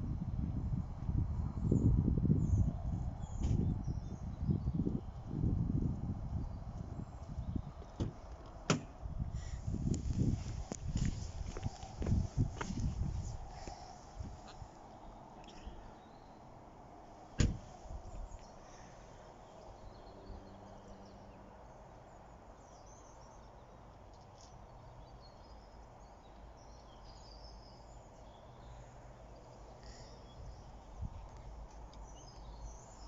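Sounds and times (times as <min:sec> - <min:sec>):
sharp knock: 0:17.4 - 0:17.6.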